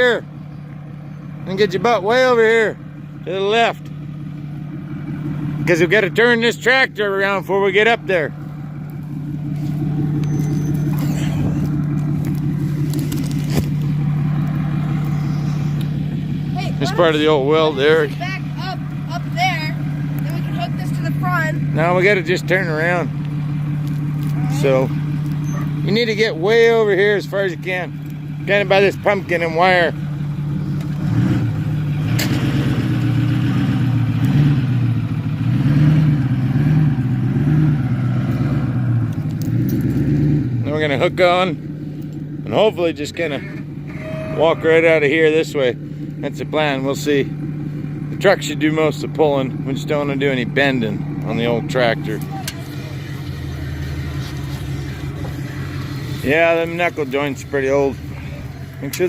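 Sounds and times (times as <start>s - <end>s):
pickup truck engine running: 0.0s - 59.0s.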